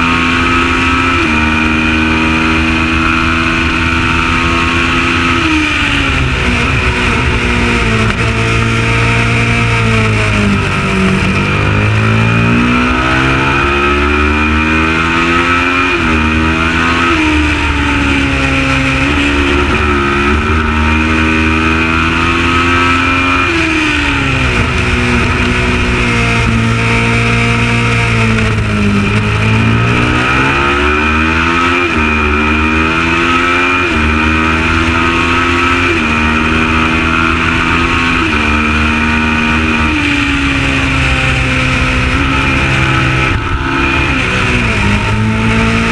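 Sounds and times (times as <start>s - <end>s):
race engine accelerating: 0.0s - 45.9s.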